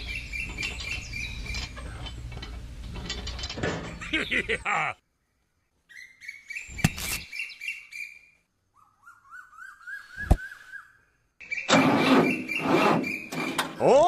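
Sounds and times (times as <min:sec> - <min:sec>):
bird-like chirping and whistling: 0:05.9 - 0:13.4.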